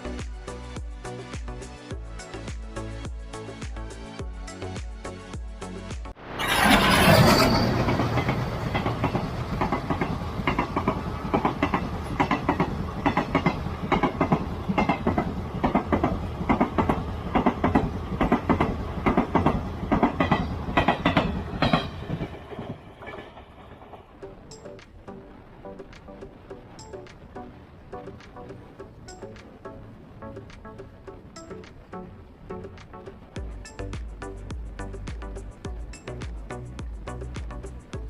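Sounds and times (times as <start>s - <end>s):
train rolling rumble: 5.6s - 38.0s
train wheels clattering over rail joints: 6.4s - 24.8s.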